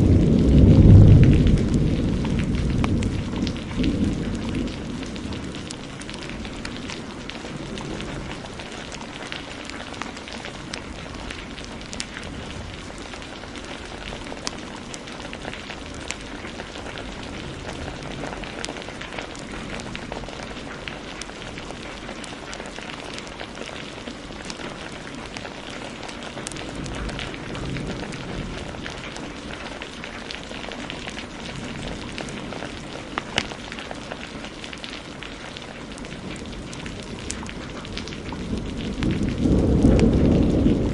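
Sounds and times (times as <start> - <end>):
fireplace crackling and popping: 0.0 - 40.9
heavy rain falling: 0.0 - 40.9.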